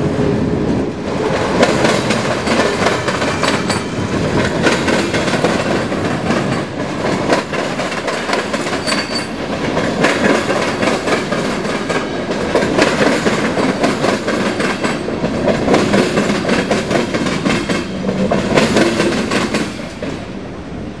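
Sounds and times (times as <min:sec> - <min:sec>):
train wheels clattering on rails: 0:00.0 - 0:20.5.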